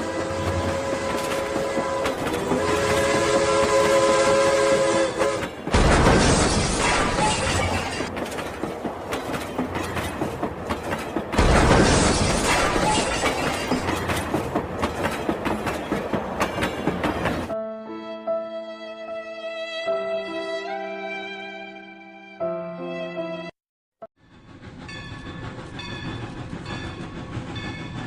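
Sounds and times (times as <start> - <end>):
train horn chord: 0.0 - 5.6
train clickety-clack running: 0.0 - 17.6, 24.2 - 28.0.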